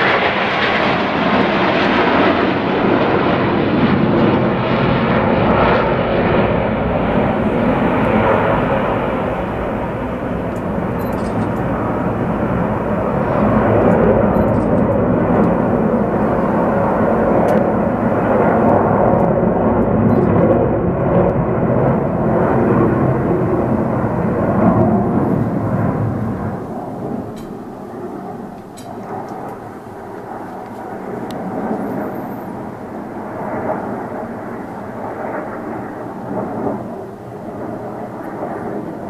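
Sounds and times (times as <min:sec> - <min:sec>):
aircraft engines in flypast: 0:00.0 - 0:39.0.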